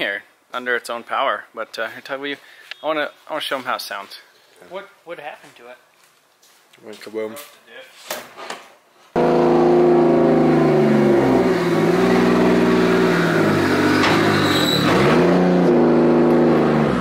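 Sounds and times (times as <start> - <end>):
loud car engine revving: 9.2 - 17.0.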